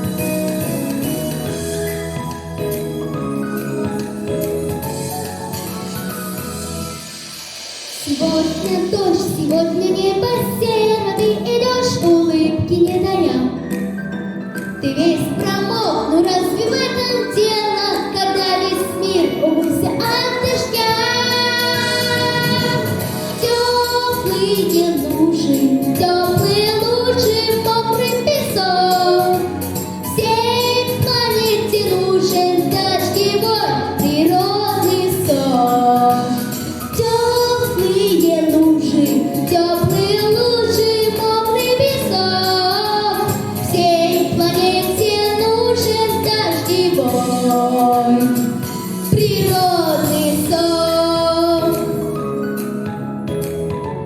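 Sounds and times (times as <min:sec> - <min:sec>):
pop backing track: 0:00.0 - 0:54.0
boy singing: 0:14.9 - 0:29.5, 0:30.2 - 0:36.4, 0:37.0 - 0:48.5, 0:49.2 - 0:52.0.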